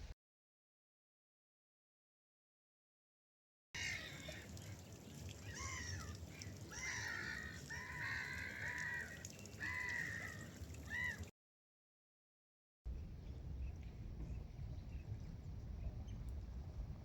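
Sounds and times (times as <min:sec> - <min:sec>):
gulls calling: 0:03.8 - 0:11.3
low steady rumble: 0:12.9 - 0:17.0.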